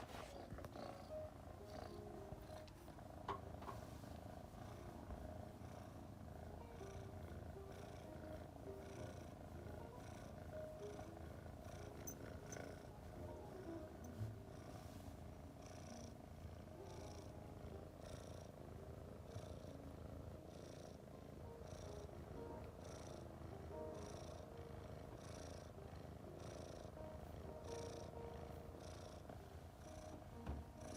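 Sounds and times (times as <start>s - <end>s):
cat purring: 0.0s - 30.9s.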